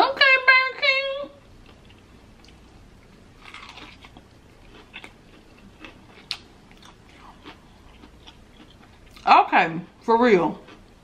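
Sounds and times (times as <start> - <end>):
crunchy biting and chewing: 1.6 - 9.3.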